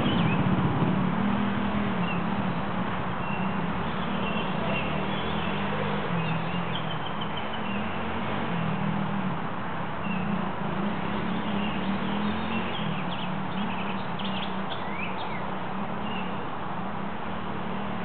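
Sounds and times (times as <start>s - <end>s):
small birds chirping: 0.0s - 0.5s, 1.8s - 8.9s, 10.0s - 16.5s.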